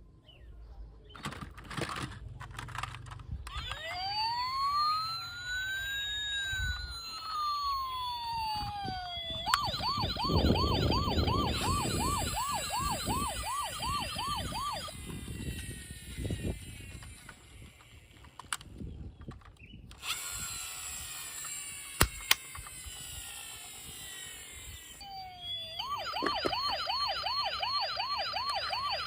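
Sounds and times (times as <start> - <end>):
electronic siren wailing and yelping: 3.4 - 16.9, 22.9 - 29.0
clicks: 8.5 - 10.3.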